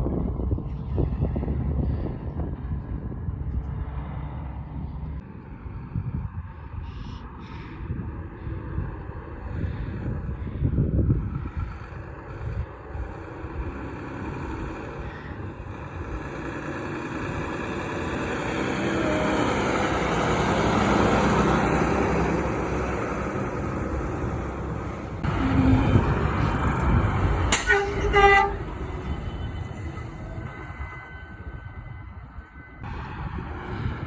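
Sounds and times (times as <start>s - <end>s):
wind on microphone: 0.0s - 4.2s, 5.1s - 34.0s
truck driving past: 0.1s - 6.6s, 8.2s - 34.0s.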